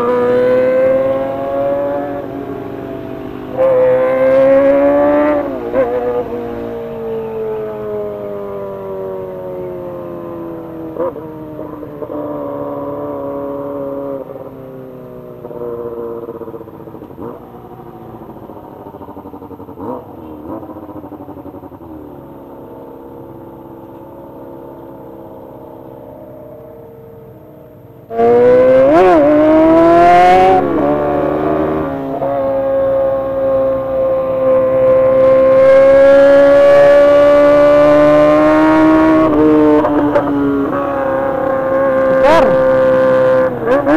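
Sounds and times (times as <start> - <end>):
motorcycle engine revving: 0.0 - 27.4, 28.0 - 43.9.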